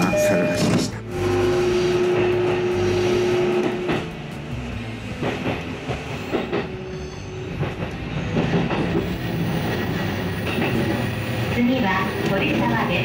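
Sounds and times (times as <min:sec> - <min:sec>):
humming tone: 0:00.0 - 0:04.2
train rumble from inside: 0:00.0 - 0:13.0.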